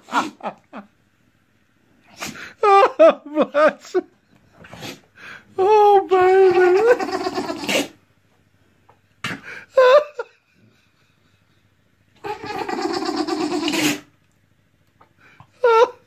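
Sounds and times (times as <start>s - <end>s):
dog making vocal noises: 6.5s - 8.0s, 12.2s - 14.1s
dog yelping: 12.2s - 14.1s.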